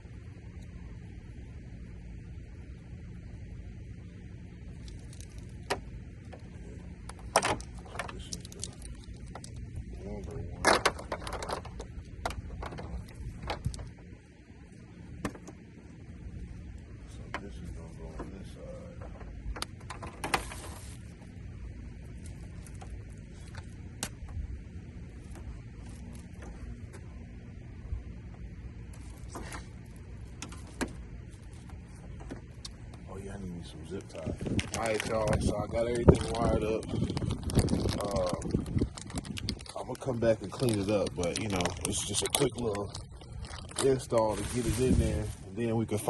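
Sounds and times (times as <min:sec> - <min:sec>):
steady low hum: 0:00.0 - 0:46.0
steady low rumble: 0:00.0 - 0:46.0
wiring connectors clicking: 0:04.8 - 0:09.7.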